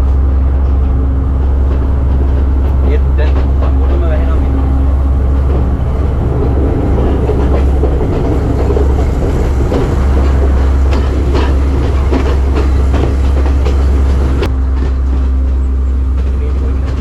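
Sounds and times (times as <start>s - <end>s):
train rumbling: 0.0s - 17.0s
wheels clacking over rail joints: 0.0s - 17.0s.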